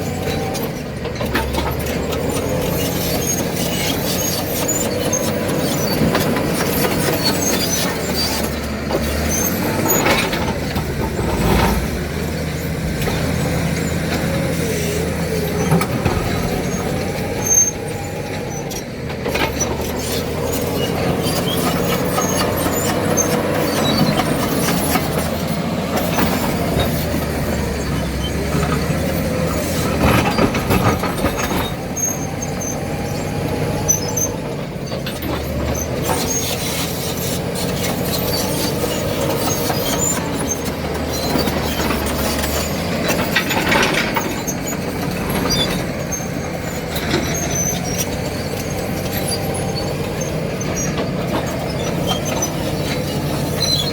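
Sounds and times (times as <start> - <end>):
bulldozer diesel engine running: 0.0 - 53.9
machine knocks and clanks: 15.6 - 16.7.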